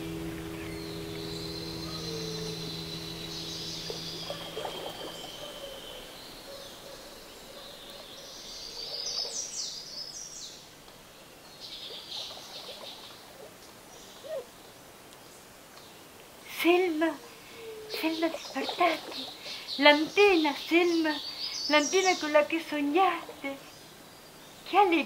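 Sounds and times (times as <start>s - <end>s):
low steady hum: 0.0s - 8.8s
birds chirping: 0.0s - 10.8s, 16.7s - 25.0s.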